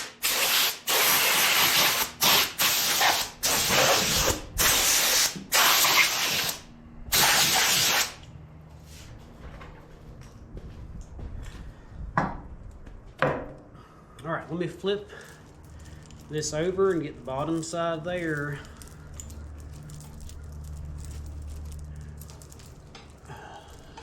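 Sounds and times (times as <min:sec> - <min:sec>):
hissing pressurized spray bursts: 0:00.0 - 0:08.2.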